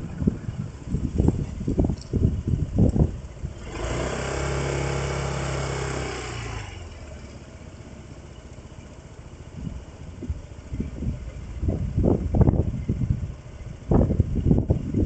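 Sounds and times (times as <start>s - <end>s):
wind buffeting microphone: 0.0s - 5.7s, 9.4s - 15.0s
vehicle engine running: 0.0s - 15.0s.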